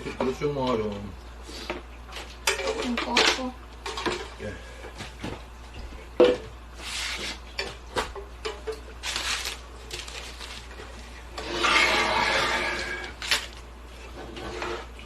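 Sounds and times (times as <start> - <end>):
rubbing and scraping in kitchen: 6.7 - 15.0.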